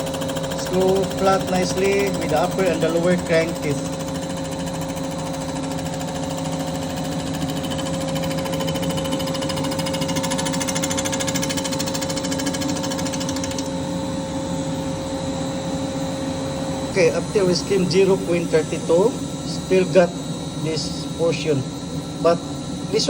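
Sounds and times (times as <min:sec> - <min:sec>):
cutter chattering on metal: 0:00.0 - 0:14.0
machine tool motor hum: 0:00.0 - 0:23.0.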